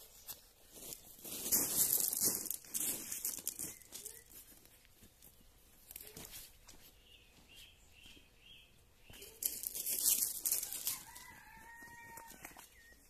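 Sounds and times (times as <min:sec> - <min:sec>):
small birds chirping: 0:03.5 - 0:10.2.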